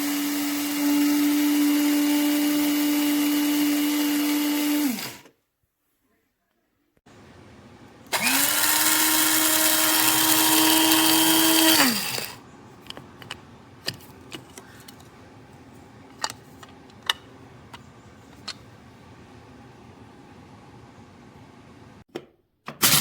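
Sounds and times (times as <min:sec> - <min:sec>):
coffee grinder motor whining: 0:00.0 - 0:05.3, 0:08.1 - 0:12.4.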